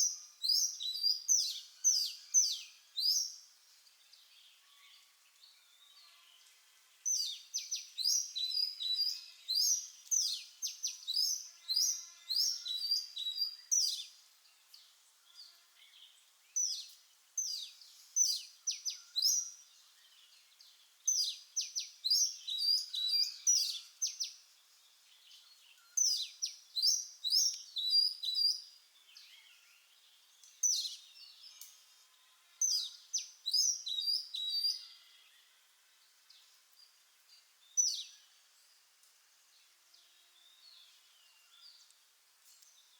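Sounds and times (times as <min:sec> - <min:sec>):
bird singing whistled notes: 0:00.0 - 0:03.4, 0:07.1 - 0:14.2, 0:21.1 - 0:24.4, 0:25.2 - 0:31.6, 0:32.6 - 0:34.8.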